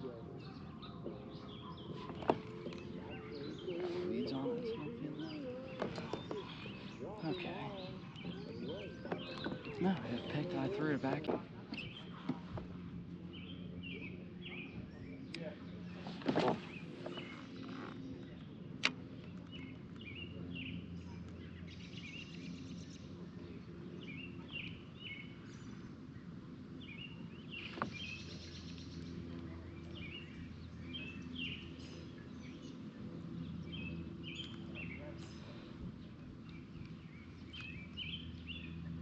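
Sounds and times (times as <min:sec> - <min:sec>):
low outdoor background: 0:00.0 - 0:39.0
songbird chirping: 0:00.0 - 0:39.0
sharp click: 0:18.8 - 0:19.0.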